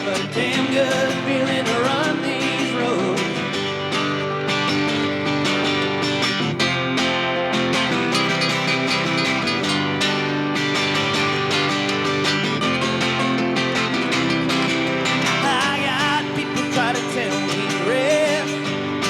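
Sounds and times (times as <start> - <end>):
strummed acoustic guitar: 0.0 - 19.0.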